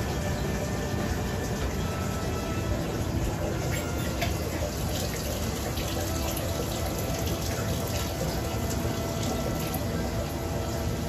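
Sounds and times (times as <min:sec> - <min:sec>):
drops splashing and dripping: 0:00.0 - 0:11.0
rain falling: 0:00.0 - 0:11.0.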